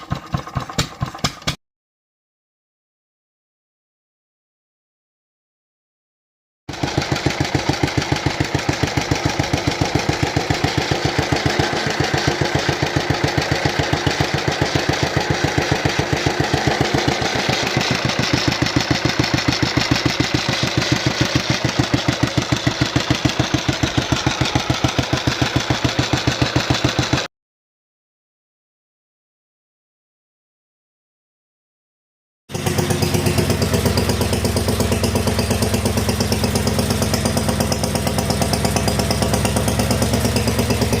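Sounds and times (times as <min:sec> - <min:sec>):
stationary engine running: 0:06.7 - 0:27.3, 0:32.5 - 0:41.0.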